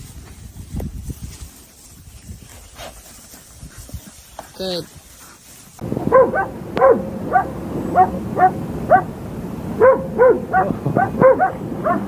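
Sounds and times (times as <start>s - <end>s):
dog barking high-pitched: 5.9s - 9.1s, 9.8s - 12.0s.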